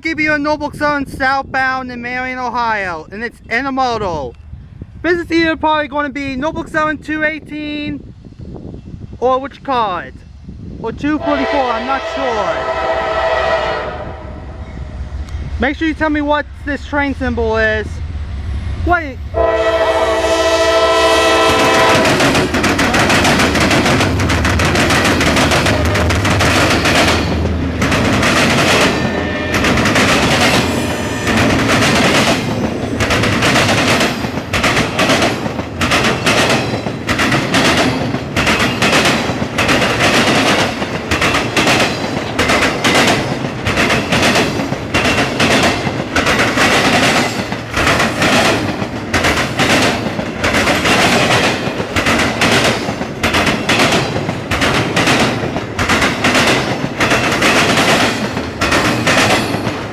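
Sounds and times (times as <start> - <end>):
train horn: 11.2 - 14.6, 19.3 - 22.2, 29.0 - 29.9, 30.7 - 31.6
locomotives rumbling: 11.2 - 59.9
wheels clacking over rail joints: 21.6 - 59.9.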